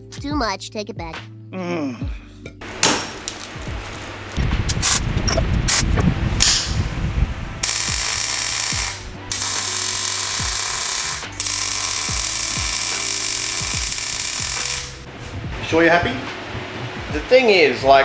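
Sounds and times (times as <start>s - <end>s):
metal rattling and knocking: 2.6s - 5.7s
welder crackling hiss: 2.6s - 7.0s, 7.6s - 15.8s.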